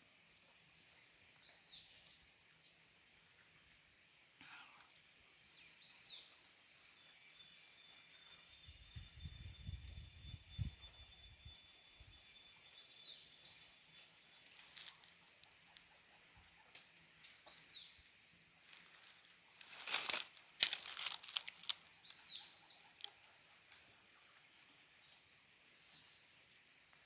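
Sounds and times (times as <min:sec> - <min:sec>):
rustling close by: 0:18.6 - 0:22.0.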